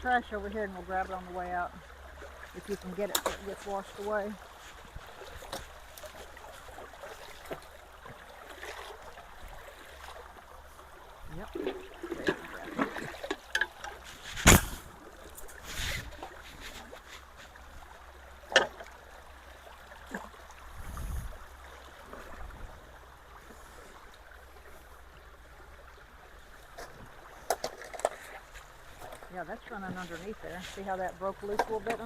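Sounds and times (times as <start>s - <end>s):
water trickling through debris: 0.0s - 32.0s
dull thud: 14.3s - 14.9s.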